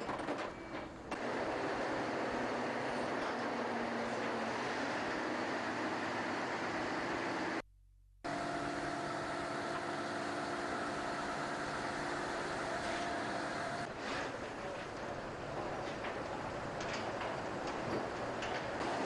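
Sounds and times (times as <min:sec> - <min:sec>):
machine running hum: 0:01.1 - 0:13.9.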